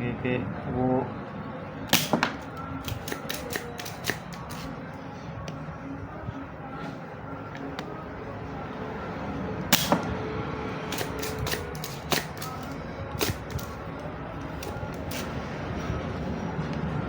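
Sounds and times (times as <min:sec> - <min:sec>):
small tools clicking and tapping: 0:02.0 - 0:04.7, 0:09.8 - 0:10.1, 0:10.9 - 0:15.4.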